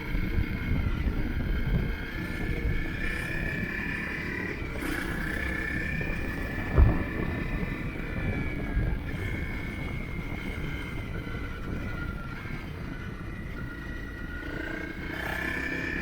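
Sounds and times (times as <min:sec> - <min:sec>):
motorcycle engine: 0:00.0 - 0:16.0
road and wind noise: 0:00.0 - 0:16.0
short thump: 0:06.7 - 0:07.6.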